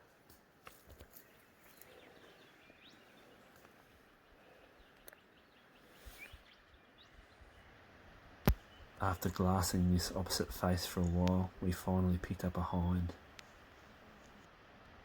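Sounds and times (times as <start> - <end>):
soft bird chirps: 1.0 - 11.5.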